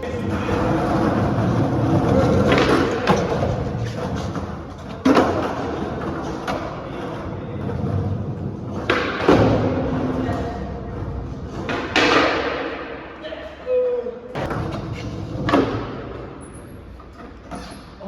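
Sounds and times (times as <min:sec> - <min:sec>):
skateboard wheels rolling on concrete: 0:00.0 - 0:12.8
skateboard clacks and slams: 0:00.1 - 0:12.9, 0:14.3 - 0:16.4.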